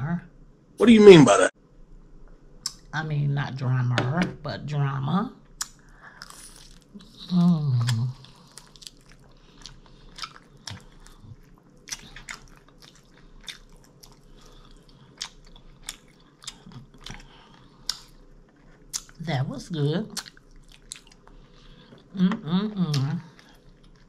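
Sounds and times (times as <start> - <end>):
chewing and biting chicken: 7.8 - 19.2, 20.2 - 21.4.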